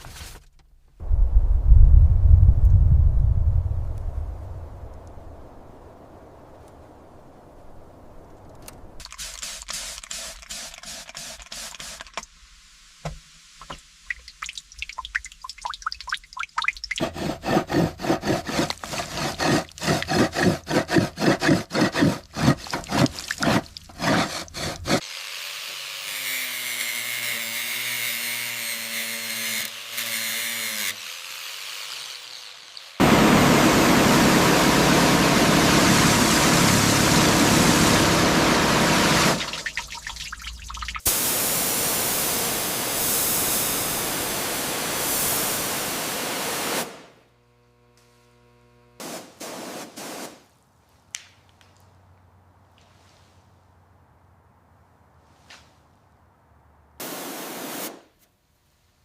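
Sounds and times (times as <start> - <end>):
loud steady hiss: 9.0 - 15.3, 31.1 - 39.6, 41.0 - 47.3, 49.0 - 50.5, 57.0 - 58.2
fast rhythmic tool strokes: 9.1 - 12.2, 16.6 - 25.2.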